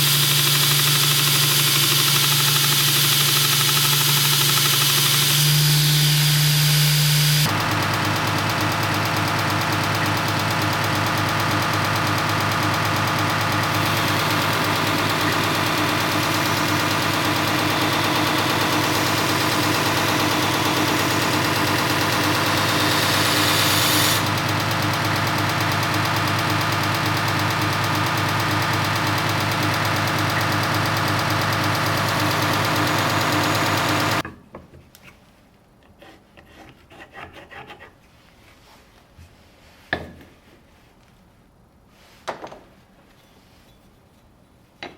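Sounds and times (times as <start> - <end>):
electric grinder grinding steel: 0.0 - 34.2.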